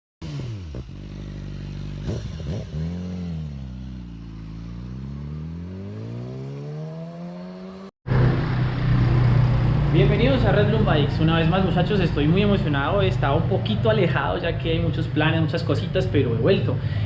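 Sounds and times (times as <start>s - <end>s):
motorcycle engine revving: 0.2s - 13.5s.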